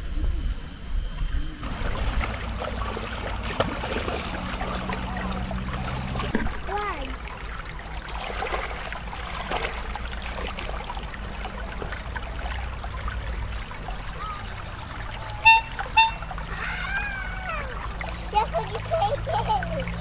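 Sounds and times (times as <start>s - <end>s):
river water flowing and splashing: 1.6s - 20.0s
loud honks: 15.3s - 16.8s.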